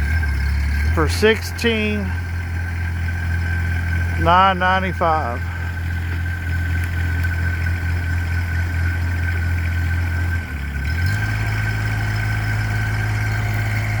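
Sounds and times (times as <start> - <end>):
diesel engine idling: 0.0 - 14.0
high whine: 4.1 - 6.2.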